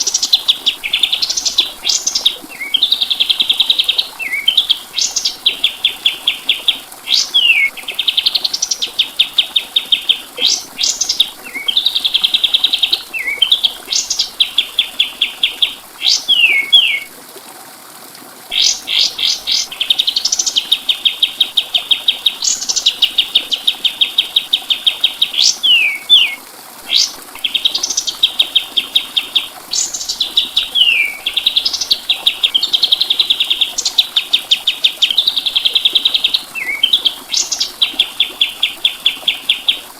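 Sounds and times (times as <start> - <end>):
songbird trilling and whistling: 0.1 - 14.3, 16.0 - 17.1, 18.5 - 39.8.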